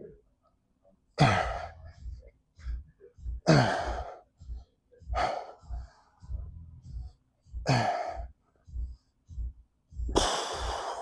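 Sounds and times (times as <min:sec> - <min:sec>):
soft low thuds: 0:01.4 - 0:10.8
person breathing out hard with grunts: 0:10.1 - 0:11.0.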